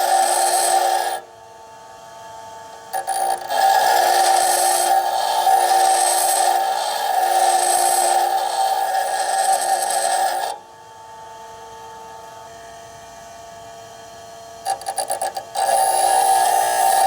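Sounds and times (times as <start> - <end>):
drill bit grinding on wheel: 0.0 - 1.3, 2.8 - 10.6, 14.6 - 17.0
grinding wheel humming: 0.0 - 1.3, 2.7 - 10.6, 14.7 - 17.0.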